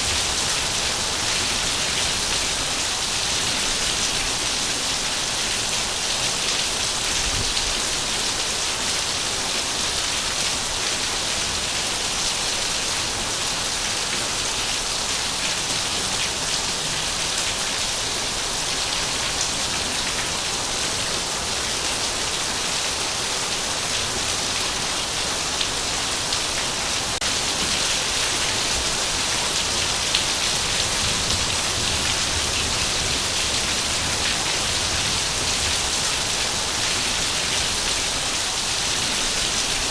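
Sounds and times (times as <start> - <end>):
heavy rain hissing: 13.4 - 39.9.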